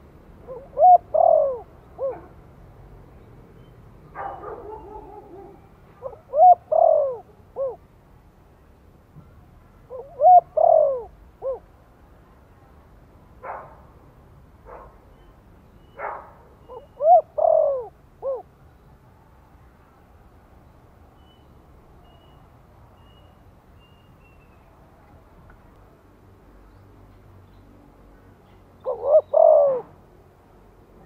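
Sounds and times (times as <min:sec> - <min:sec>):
dove cooing: 0:00.4 - 0:02.4, 0:04.2 - 0:07.8, 0:09.9 - 0:11.7, 0:16.6 - 0:18.5, 0:28.8 - 0:30.0
faint high bird chirps: 0:03.2 - 0:06.2, 0:15.1 - 0:17.2, 0:20.6 - 0:24.8.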